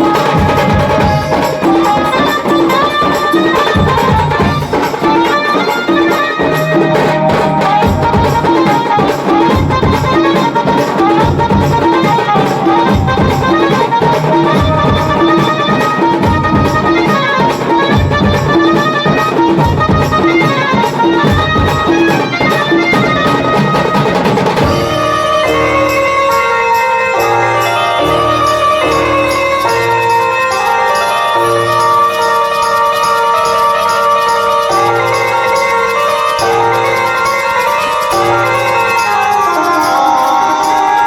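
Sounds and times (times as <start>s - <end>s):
steady drum beat: 0.0s - 30.9s
keyboard melody: 0.0s - 41.0s.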